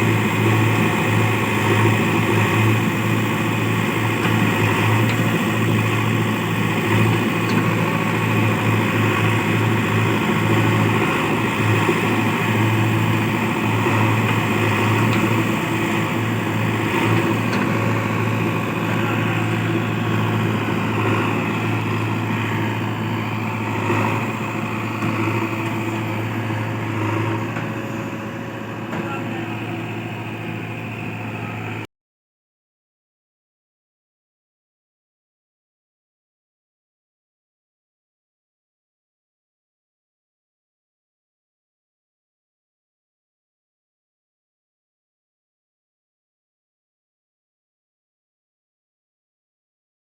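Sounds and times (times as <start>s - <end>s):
heavy diesel engine running: 0.0s - 31.9s.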